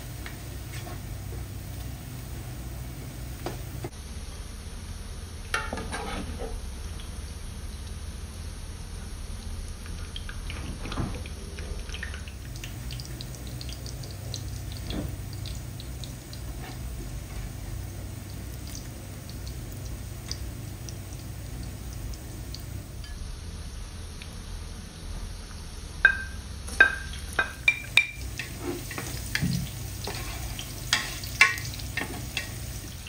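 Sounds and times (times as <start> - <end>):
spatula scraping through onions: 5.8 - 6.5, 28.4 - 32.8
onions sizzling in hot oil: 12.2 - 23.0, 26.1 - 33.0.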